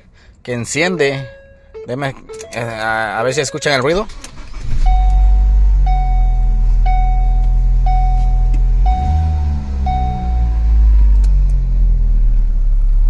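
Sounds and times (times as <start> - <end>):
car engine low drone: 0.0 - 13.0
warning chime beeping: 0.8 - 10.7.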